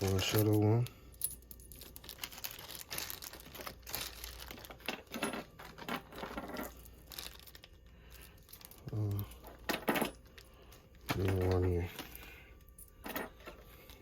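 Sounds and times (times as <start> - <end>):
rustling: 1.5 - 12.3.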